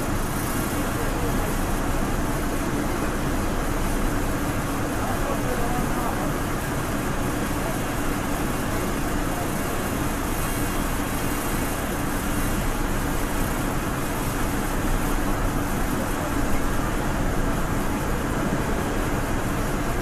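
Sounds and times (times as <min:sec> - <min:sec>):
train rumbling from inside: 0:15.9 - 0:20.0.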